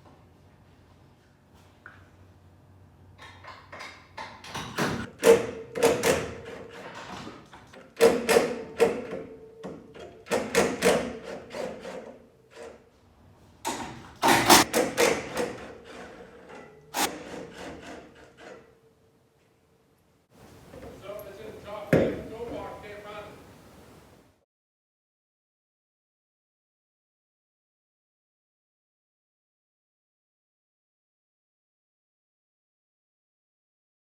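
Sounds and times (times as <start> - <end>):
hand tools knocking and clanking: 3.2 - 12.8, 13.7 - 18.7, 20.6 - 23.4
faint steady hum: 18.9 - 24.4.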